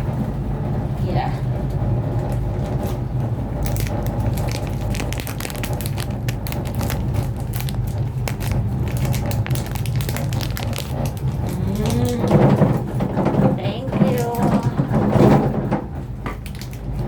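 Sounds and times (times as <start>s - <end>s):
low rumble in cable car: 0.0s - 17.0s
irregular crackling clicks: 3.7s - 13.0s.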